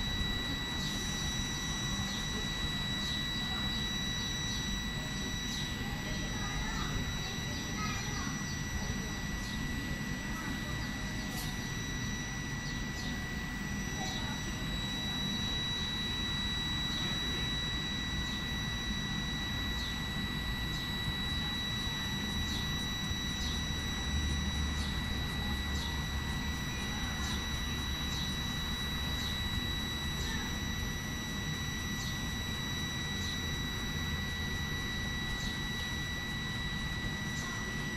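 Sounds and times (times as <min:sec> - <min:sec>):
high electrical whine: 0:00.0 - 0:37.9.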